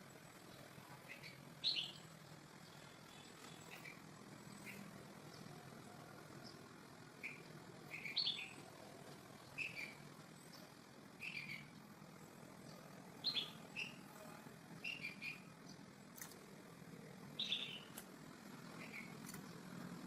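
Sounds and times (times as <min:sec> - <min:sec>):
bird chirping: 0:00.2 - 0:08.8, 0:09.4 - 0:14.1, 0:14.8 - 0:16.4, 0:17.3 - 0:18.0, 0:18.6 - 0:19.7.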